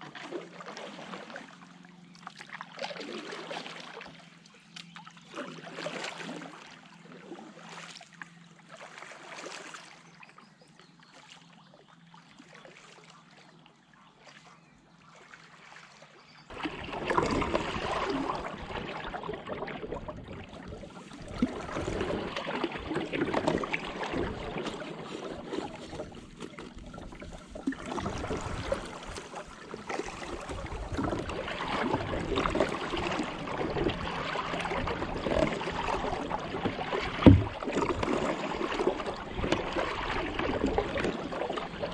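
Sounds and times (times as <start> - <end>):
kayak hull moving through water: 0.0 - 41.9
paddle splashing water: 0.0 - 41.9.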